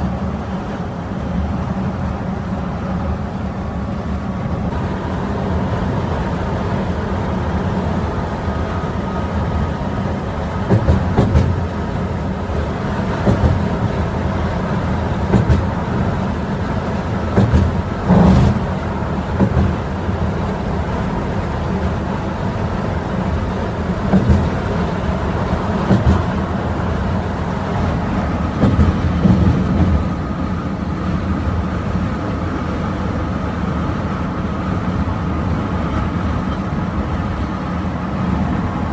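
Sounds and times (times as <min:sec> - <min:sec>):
bus engine and road rumble: 0:00.0 - 0:38.9
short knock or rattle: 0:10.7 - 0:11.8, 0:17.3 - 0:18.8, 0:28.5 - 0:30.2.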